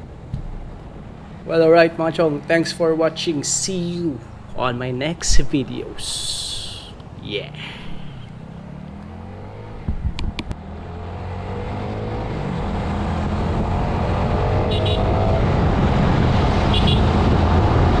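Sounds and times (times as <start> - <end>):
vehicle engine running: 0.0 - 10.9
sharp clicks: 9.0 - 10.5.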